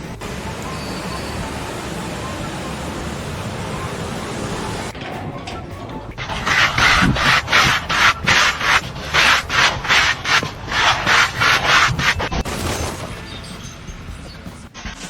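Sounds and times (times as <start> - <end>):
rapid rasping scraping strokes: 6.2 - 12.5.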